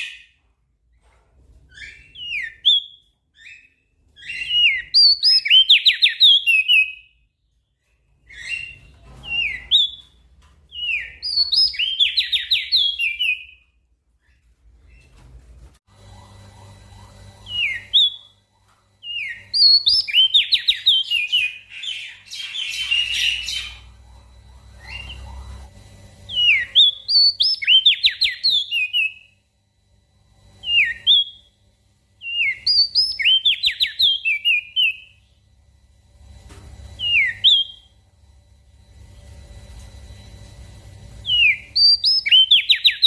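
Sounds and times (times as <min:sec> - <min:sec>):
bird chirping whistles: 0:01.7 - 0:07.2, 0:10.7 - 0:13.6, 0:17.4 - 0:18.4, 0:19.0 - 0:25.6, 0:26.3 - 0:29.4, 0:30.6 - 0:31.5, 0:32.2 - 0:35.2, 0:37.0 - 0:38.0, 0:41.2 - 0:43.0
steady low hum: 0:13.5 - 0:43.0.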